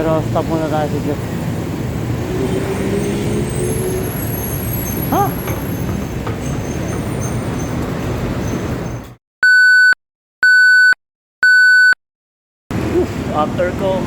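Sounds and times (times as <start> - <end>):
street traffic: 0.0 - 9.2, 12.7 - 14.0.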